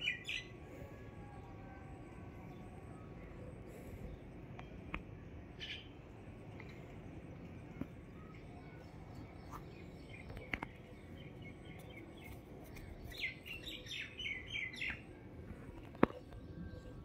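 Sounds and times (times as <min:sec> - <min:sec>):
faint outdoor background: 0:00.0 - 0:17.0
small bird chirping: 0:07.4 - 0:15.2.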